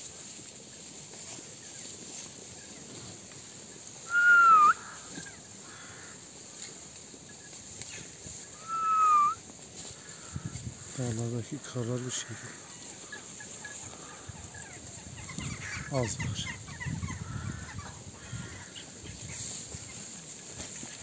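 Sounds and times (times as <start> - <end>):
faint outdoor background: 0.0 - 21.0
bird whistle-like call: 4.1 - 5.0, 8.5 - 9.4.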